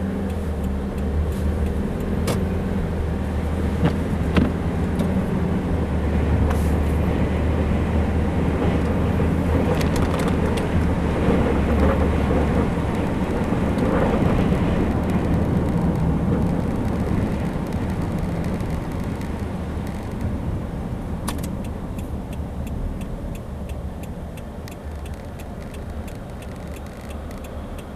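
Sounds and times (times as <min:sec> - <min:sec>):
car engine and road noise: 0:00.0 - 0:27.9
faint clicks: 0:21.3 - 0:27.9.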